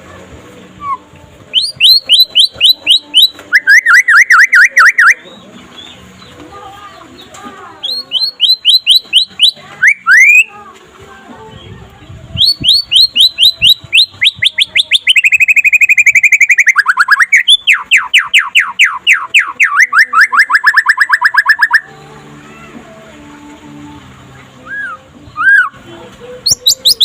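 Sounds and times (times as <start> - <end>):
bird singing rapid repeated notes: 0.8 - 10.5, 12.4 - 22.0, 26.4 - 27.0.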